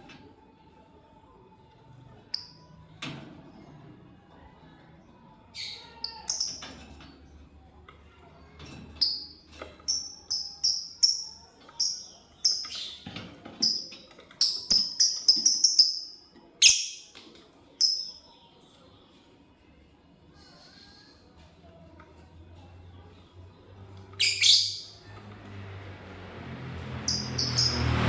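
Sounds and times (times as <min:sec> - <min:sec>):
lovebird chirping: 0:13.6 - 0:17.1, 0:24.2 - 0:25.0, 0:27.1 - 0:27.8.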